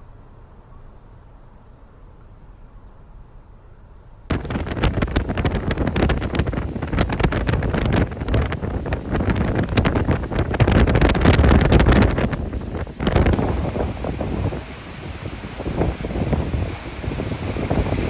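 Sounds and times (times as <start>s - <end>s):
wind buffeting microphone: 4.3s - 18.0s.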